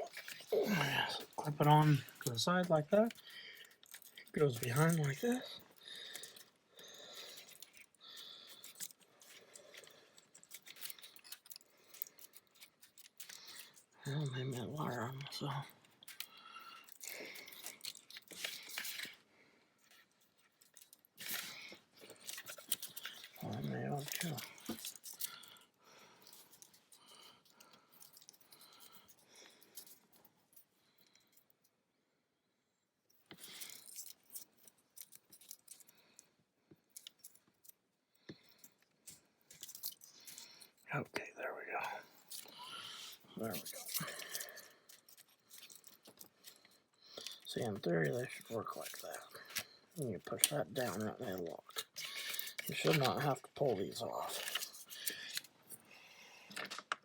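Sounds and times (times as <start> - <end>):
small parts clicking and rattling: 0.0 - 31.8, 33.0 - 57.0
plastic clips clicking and scraping: 19.8 - 25.6, 43.4 - 55.8, 56.5 - 57.0.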